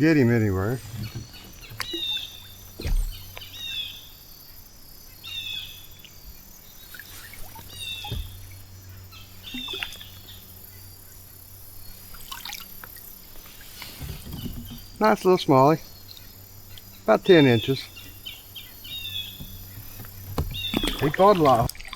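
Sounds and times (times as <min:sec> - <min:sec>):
faint steady hum: 0:00.0 - 0:21.9
low thump: 0:02.8 - 0:03.4, 0:08.0 - 0:08.6.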